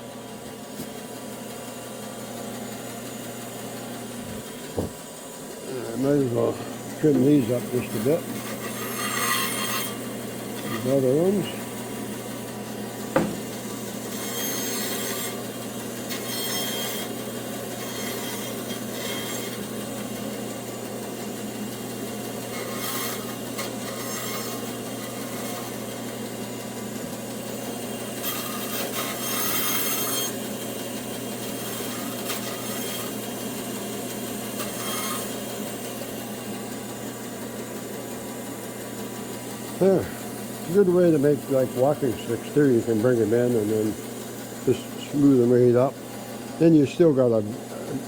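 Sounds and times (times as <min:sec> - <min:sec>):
bandsaw cutting wood: 0:04.1 - 0:05.0, 0:05.6 - 0:37.5, 0:39.1 - 0:48.0
sharp knock: 0:13.1 - 0:13.4.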